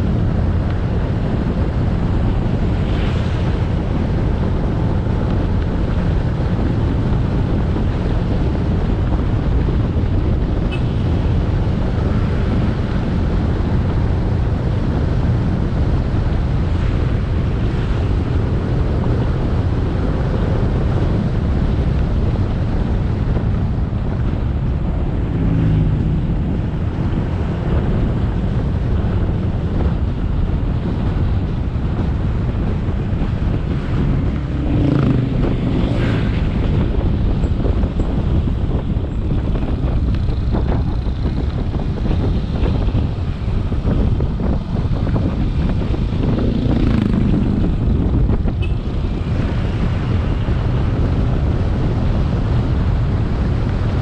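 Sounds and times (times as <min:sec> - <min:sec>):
road noise: 0:00.0 - 0:54.0
wind buffeting microphone: 0:00.0 - 0:54.0
motorcycle engine: 0:32.4 - 0:50.4.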